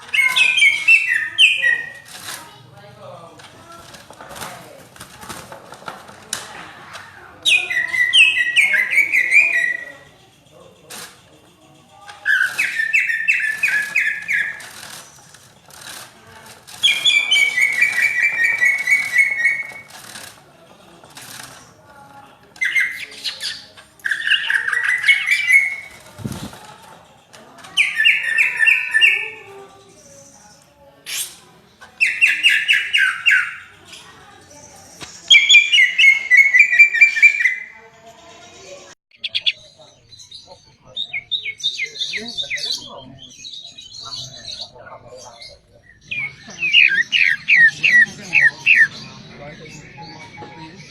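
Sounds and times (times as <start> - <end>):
bird singing loudly: 0.0 - 2.1, 7.4 - 10.4, 12.2 - 15.2, 16.8 - 19.9, 22.6 - 26.0, 27.8 - 30.5, 32.0 - 34.1, 34.7 - 37.8, 39.1 - 50.9
bird singing whistled notes: 0.0 - 2.1, 7.4 - 10.2, 12.2 - 14.8, 34.6 - 37.8, 45.4 - 50.9.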